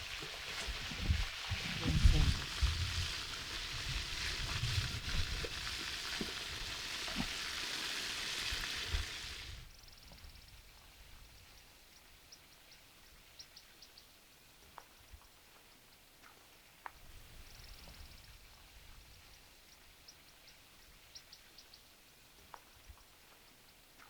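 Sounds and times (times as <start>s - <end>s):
food deep-frying in oil: 0.0s - 9.6s.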